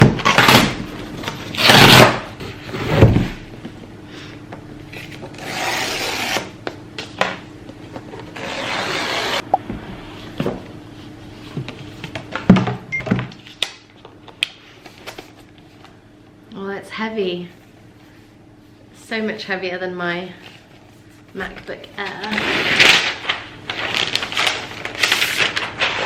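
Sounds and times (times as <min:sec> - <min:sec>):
cardboard packaging rustling: 0:22.0 - 0:26.0.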